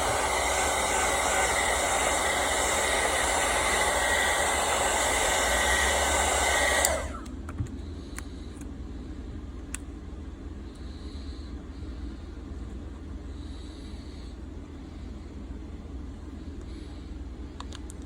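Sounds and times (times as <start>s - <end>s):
heat gun blowing air: 0.0s - 7.3s.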